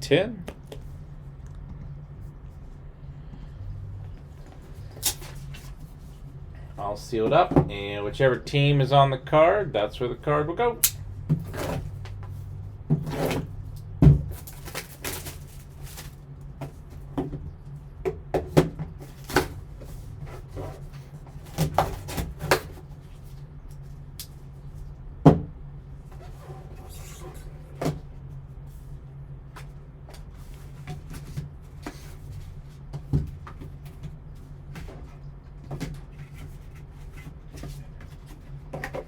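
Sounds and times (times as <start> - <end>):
steady low hum: 0.0 - 39.0
packaging clicks and rustles: 14.3 - 16.2.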